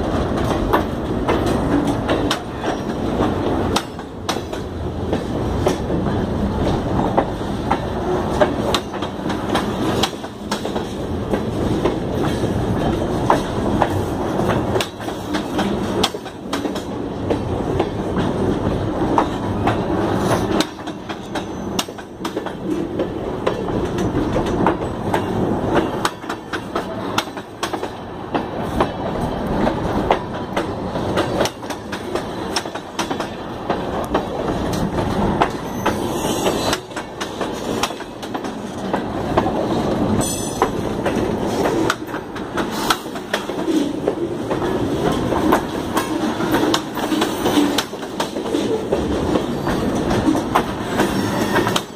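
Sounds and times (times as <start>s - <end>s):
freight train wheels rumbling: 0.0s - 51.9s
wheels clacking over rail joints: 0.0s - 51.9s.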